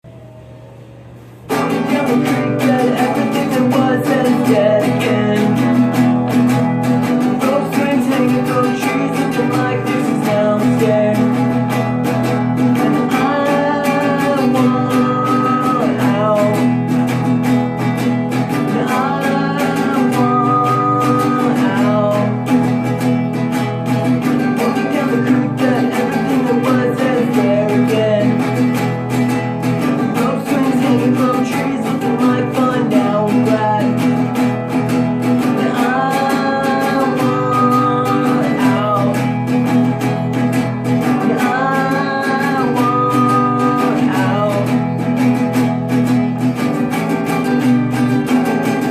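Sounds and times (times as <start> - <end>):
acoustic guitar strummed and plucked: 0.0 - 48.9.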